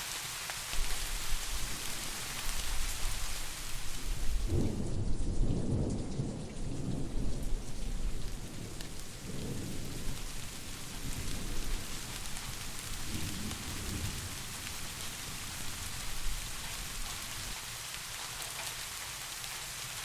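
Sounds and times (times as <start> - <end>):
steady rain: 0.0 - 20.0
distant thunder rumble: 0.8 - 17.6.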